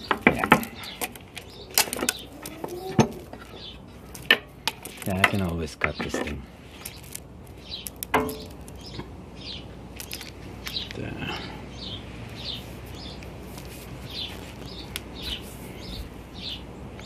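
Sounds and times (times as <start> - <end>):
small bird chirping: 0.0 - 4.2, 5.8 - 17.0
hose rustling: 0.0 - 9.0, 12.1 - 16.3.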